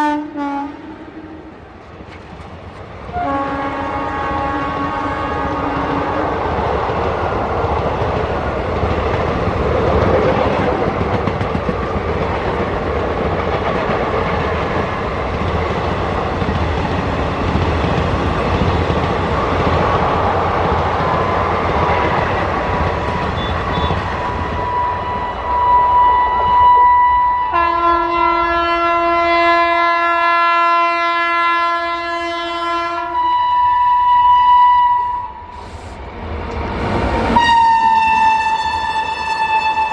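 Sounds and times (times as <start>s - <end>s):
locomotive horn: 0.0s - 1.5s, 3.1s - 6.4s, 23.1s - 35.6s, 37.3s - 39.9s
train rumble and rail clatter: 0.0s - 39.9s.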